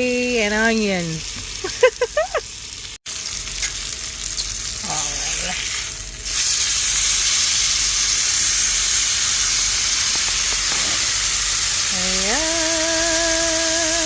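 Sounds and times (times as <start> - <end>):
steak sizzling in pan: 0.6 - 14.0
person humming a wavering note: 11.9 - 14.0.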